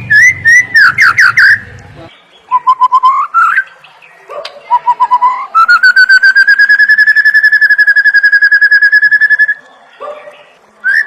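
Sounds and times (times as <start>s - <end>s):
bird whistled trill: 0.0s - 1.7s, 2.5s - 3.7s, 4.7s - 9.6s.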